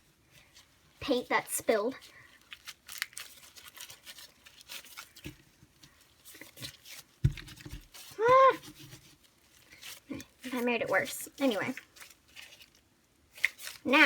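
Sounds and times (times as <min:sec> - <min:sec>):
slime being squished: 0:06.2 - 0:14.0.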